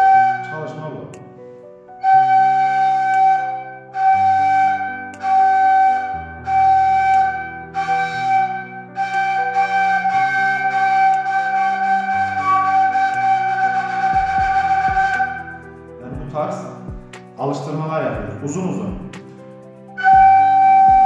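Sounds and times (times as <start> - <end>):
reed flute long notes: 0.0 - 1.2, 2.0 - 15.8, 19.9 - 21.0
lower accompaniment: 0.0 - 21.0.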